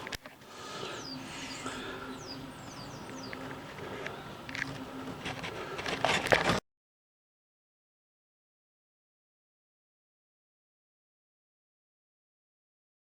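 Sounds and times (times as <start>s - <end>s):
birds chirping: 0.0s - 6.0s
faint steady hum: 0.0s - 6.6s.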